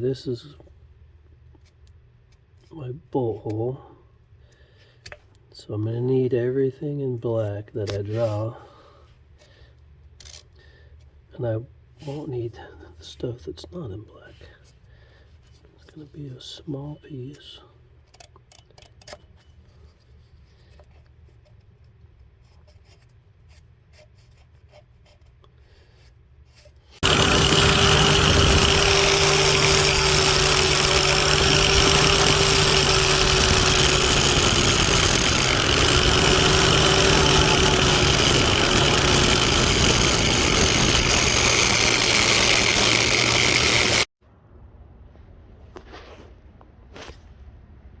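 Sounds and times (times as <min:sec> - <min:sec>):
power grinder grinding metal: 0:27.0 - 0:44.1.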